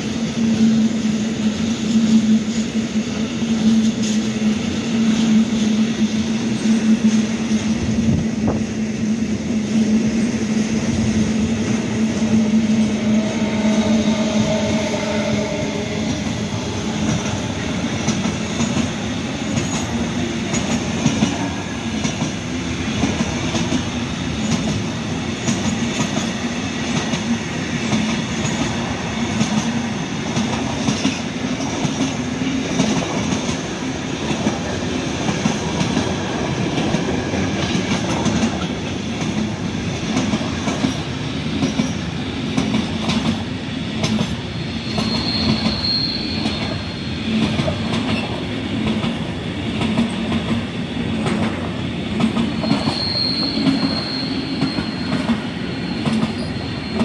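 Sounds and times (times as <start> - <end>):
train wheels rumbling on rails: 0.0 - 57.0
high wheel squeal: 44.8 - 47.1, 52.6 - 57.0.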